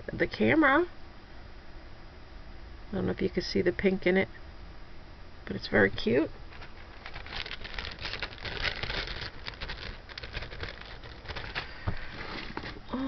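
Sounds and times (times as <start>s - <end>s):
plastic bags crinkling: 6.5s - 12.8s.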